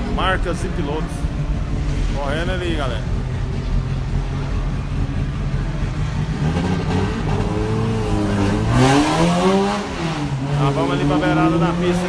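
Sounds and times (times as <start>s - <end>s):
engine revving: 0.0s - 12.0s
race car engines droning: 0.0s - 12.0s.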